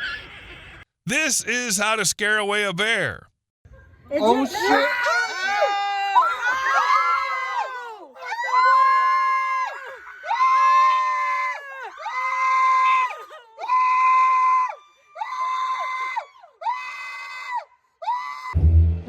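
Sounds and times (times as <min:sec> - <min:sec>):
music: 0:18.6 - 0:19.0.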